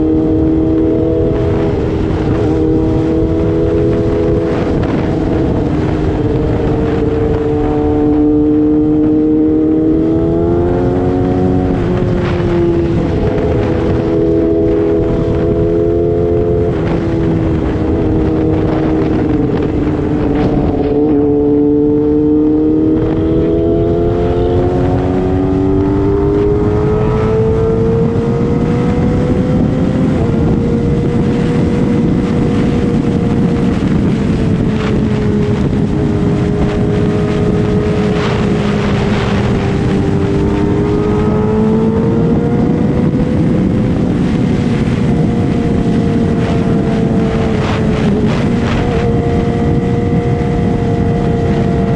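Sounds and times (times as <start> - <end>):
motorcycle engine revving high: 0.0 - 51.9.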